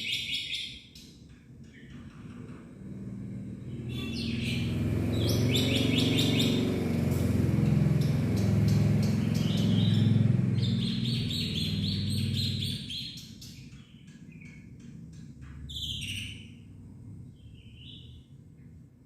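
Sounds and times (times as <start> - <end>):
loud low hum: 1.8 - 13.7
starling singing: 3.9 - 14.6.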